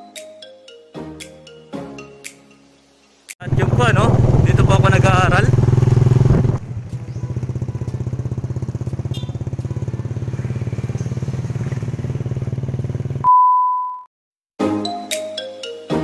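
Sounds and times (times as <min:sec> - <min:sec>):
small motorcycle engine running: 0:03.5 - 0:13.2
steady beep: 0:13.2 - 0:14.1.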